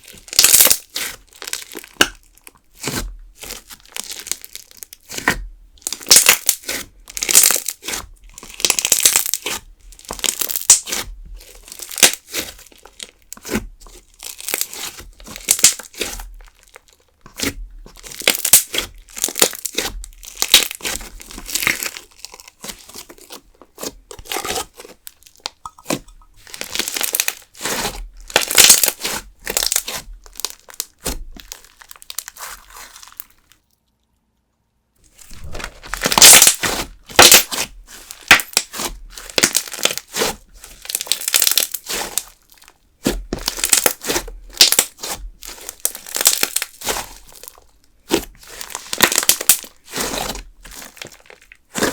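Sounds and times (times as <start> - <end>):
slime crackling when squeezed: 0.3 - 2.2, 5.8 - 11.0, 11.7 - 13.1, 14.2 - 16.8, 18.0 - 23.1, 25.3 - 33.6, 35.1 - 42.7, 43.3 - 47.6, 48.4 - 51.6.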